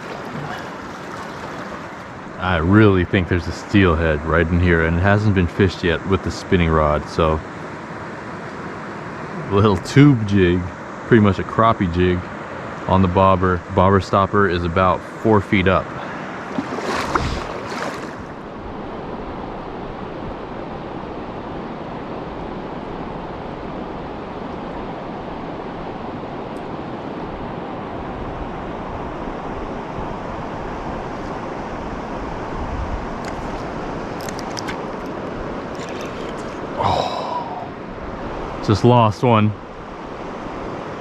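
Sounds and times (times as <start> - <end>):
river water rushing over rocks: 0.0 - 2.4, 16.0 - 18.5, 33.3 - 38.8.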